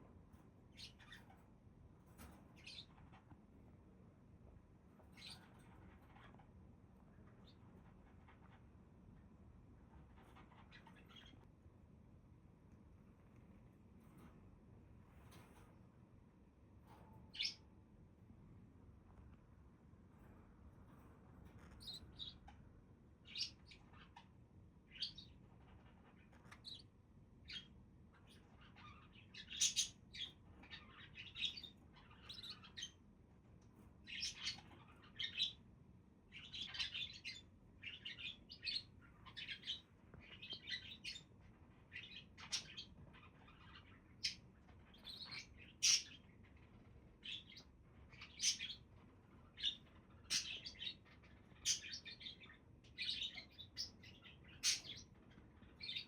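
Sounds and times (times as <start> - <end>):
budgerigars chirping: 0.8 - 1.4, 5.2 - 5.5, 10.3 - 11.4, 17.3 - 17.6, 21.8 - 22.4, 23.2 - 24.2, 24.9 - 26.8, 27.5 - 33.0, 34.1 - 35.6, 36.3 - 41.3, 41.9 - 48.8, 49.4 - 56.0.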